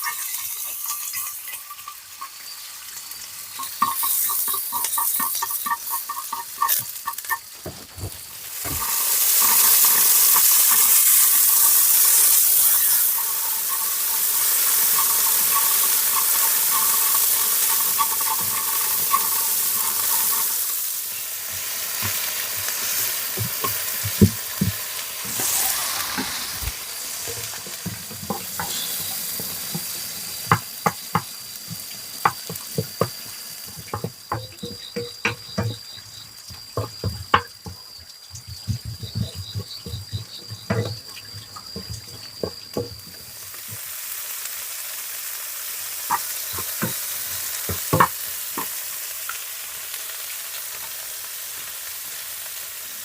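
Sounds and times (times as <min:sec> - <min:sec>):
food sizzling in hot oil: 0:00.0 - 0:53.0
utensil scraping and tapping pan: 0:03.5 - 0:20.6, 0:22.9 - 0:36.2, 0:38.5 - 0:43.1, 0:47.7 - 0:48.8.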